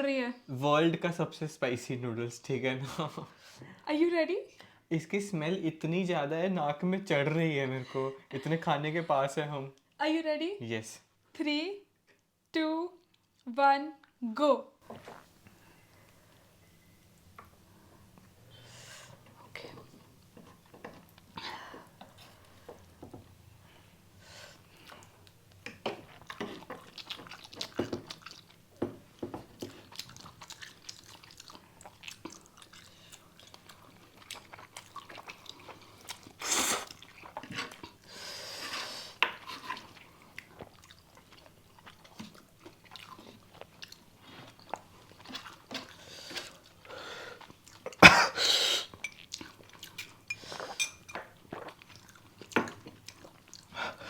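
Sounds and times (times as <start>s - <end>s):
close chewing of noodles: 24.6s - 54.0s.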